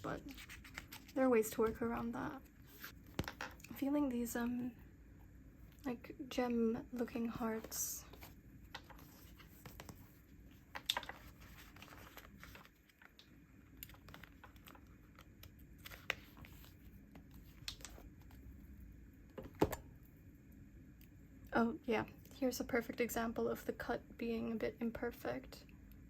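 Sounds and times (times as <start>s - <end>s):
paper rustling and crinkling: 0.1s - 2.0s, 7.6s - 18.4s.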